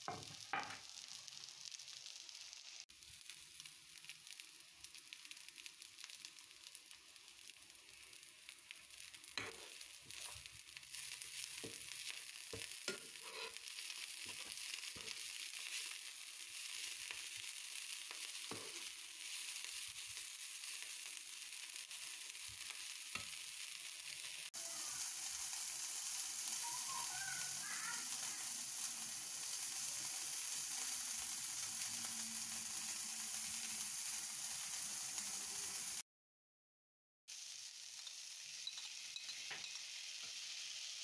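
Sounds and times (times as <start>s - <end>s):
greens sizzling in a pan: 0.0s - 36.0s, 37.3s - 41.0s
utensil stirring in a pan: 7.4s - 36.0s, 38.0s - 40.8s.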